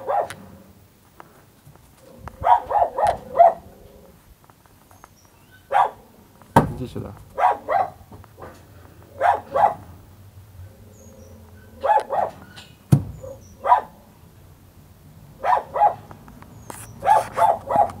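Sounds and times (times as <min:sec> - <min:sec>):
small dog yipping: 0:00.0 - 0:00.4, 0:02.4 - 0:03.6, 0:05.4 - 0:06.0, 0:07.4 - 0:08.0, 0:09.2 - 0:09.8, 0:11.2 - 0:12.6, 0:13.2 - 0:14.0, 0:15.4 - 0:16.0, 0:16.7 - 0:18.0
sharp thump: 0:06.6 - 0:07.0, 0:12.9 - 0:13.3.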